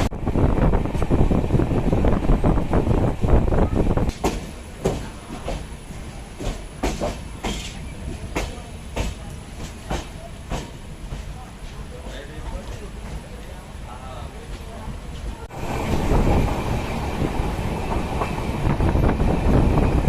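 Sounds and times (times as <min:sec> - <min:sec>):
train rumble and rattle: 0:00.0 - 0:20.0
train wheels clicking: 0:04.0 - 0:13.5.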